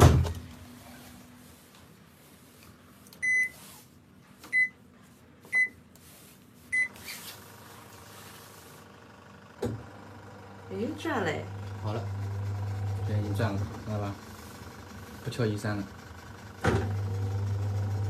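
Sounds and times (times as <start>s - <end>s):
washing machine beeps: 3.2s - 3.6s, 4.5s - 4.8s, 5.5s - 5.8s, 6.7s - 7.0s.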